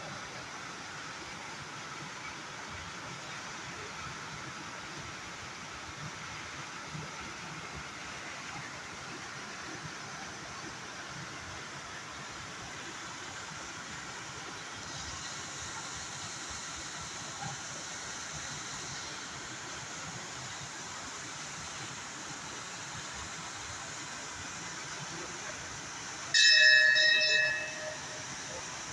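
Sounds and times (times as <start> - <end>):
waterfall rushing: 18.6 - 28.9
bell-like ring: 26.4 - 28.9.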